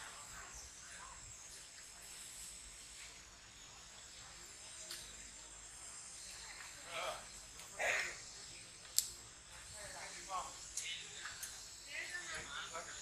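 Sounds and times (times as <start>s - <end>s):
high-pitched insect drone: 9.7s - 13.0s.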